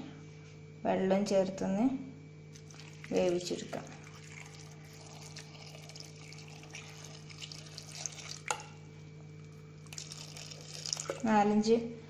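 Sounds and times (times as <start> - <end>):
steady low hum: 0.0 - 12.0
water pouring into a pot: 2.6 - 8.8, 9.8 - 11.3.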